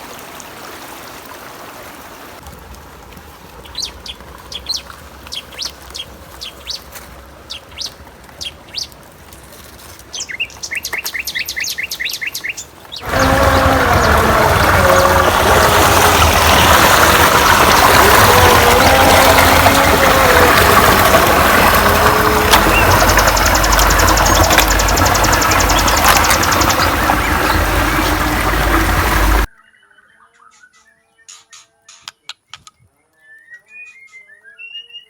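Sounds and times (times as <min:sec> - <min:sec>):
truck engine rumbling: 0:12.9 - 0:29.5
fast high ticking: 0:13.0 - 0:29.5.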